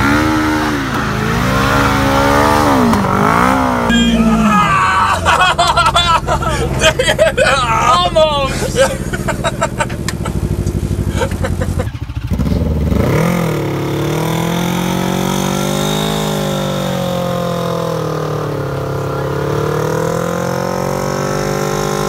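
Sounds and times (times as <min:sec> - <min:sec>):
car engine revving: 0:00.0 - 0:22.0
men laughing: 0:03.2 - 0:12.2.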